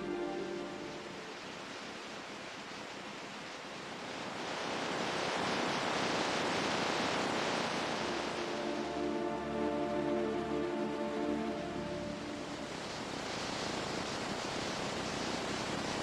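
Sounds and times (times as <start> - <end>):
ocean surf rushing: 0.0 - 16.0.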